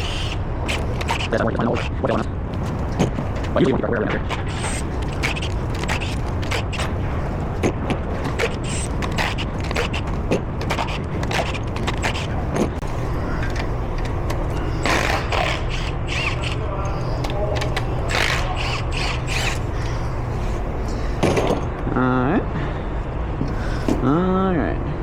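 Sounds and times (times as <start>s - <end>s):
steady low hum: 0.0s - 25.0s
metal clicks and scrapes: 0.6s - 19.9s.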